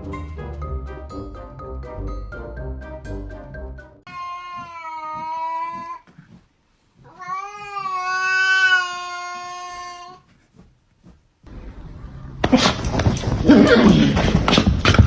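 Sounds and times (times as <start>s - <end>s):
cat yowling: 7.1s - 10.2s.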